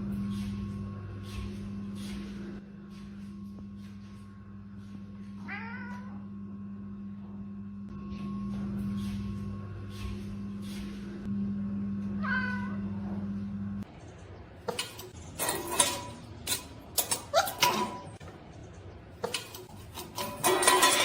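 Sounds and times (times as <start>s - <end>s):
steady low hum: 0.0s - 16.9s
cat meowing: 5.4s - 6.2s, 12.2s - 12.8s.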